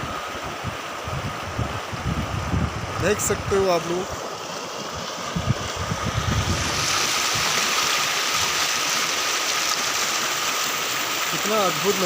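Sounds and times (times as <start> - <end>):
wind rumbling on microphone: 0.0 - 8.7
river water flowing: 0.0 - 12.0.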